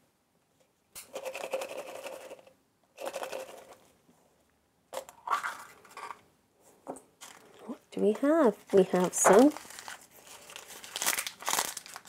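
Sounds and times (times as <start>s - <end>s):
plastic wrapping crinkling: 7.2s - 12.0s.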